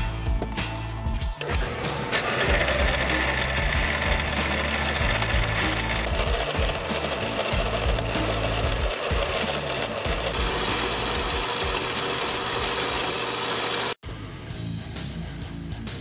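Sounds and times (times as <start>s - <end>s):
band saw cutting metal: 1.4s - 14.0s.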